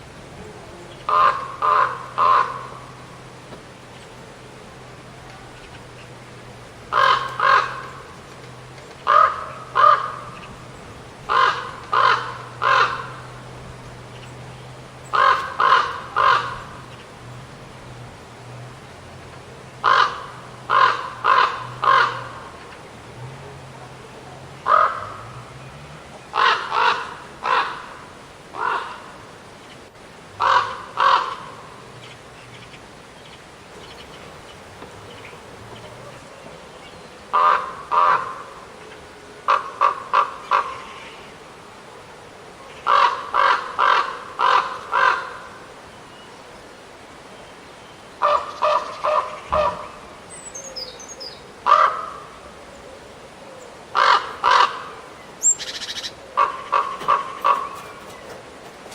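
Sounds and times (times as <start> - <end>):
raven cawing: 1.0 - 3.3, 6.9 - 8.2, 9.0 - 10.6, 11.2 - 13.8, 15.0 - 17.1, 19.8 - 22.8, 24.6 - 25.4, 26.3 - 29.3, 30.4 - 31.9, 37.3 - 38.8, 39.4 - 41.2, 42.8 - 45.7, 48.2 - 50.0, 51.6 - 52.4, 53.5 - 58.9.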